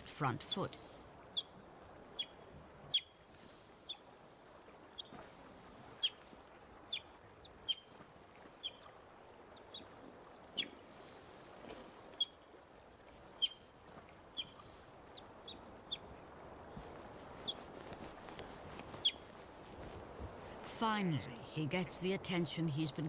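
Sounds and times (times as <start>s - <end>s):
river water rushing: 20.4s - 23.0s.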